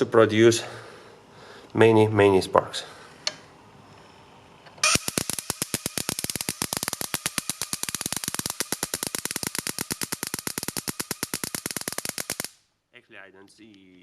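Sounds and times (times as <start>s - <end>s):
igniter plugs sparking snaps: 4.8s - 12.6s.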